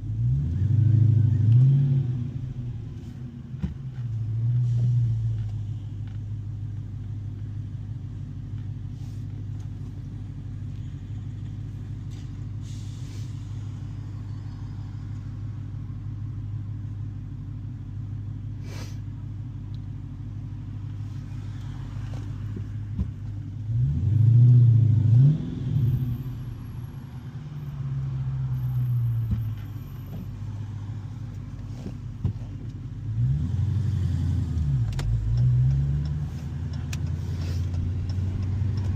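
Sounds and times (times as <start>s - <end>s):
car engine revving: 0.0s - 6.2s, 20.3s - 38.9s
car engine droning: 0.0s - 38.9s.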